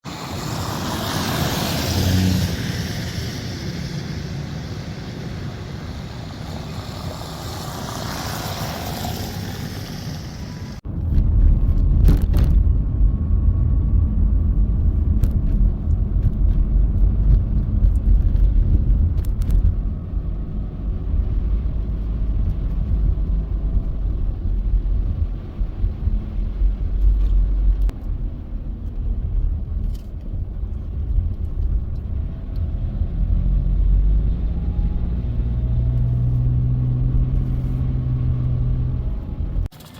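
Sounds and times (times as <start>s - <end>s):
heavy low rumble: 0.0s - 39.7s
tyres hissing through slush: 0.1s - 10.8s.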